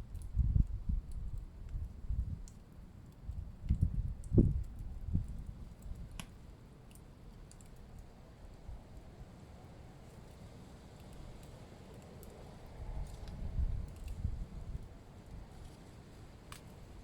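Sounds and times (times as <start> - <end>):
wood fire crackling: 15.2 - 17.0.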